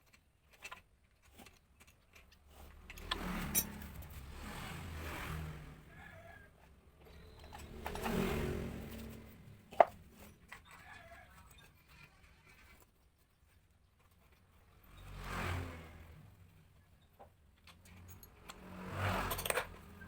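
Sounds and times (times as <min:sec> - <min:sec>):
vehicles passing by: 0:02.5 - 0:12.0, 0:14.1 - 0:20.0.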